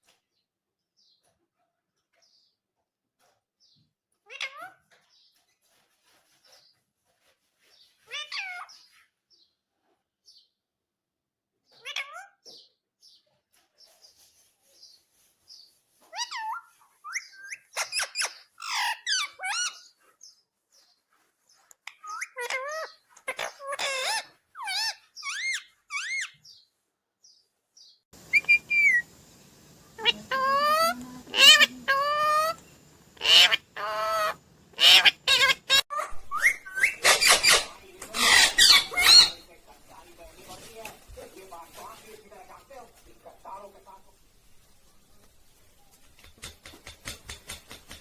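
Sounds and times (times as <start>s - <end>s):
parrot soft chattering: 21.9s - 26.3s, 30.0s - 32.6s, 33.2s - 39.5s
parrot wavering calls: 28.3s - 29.1s, 30.0s - 32.6s, 33.2s - 39.4s.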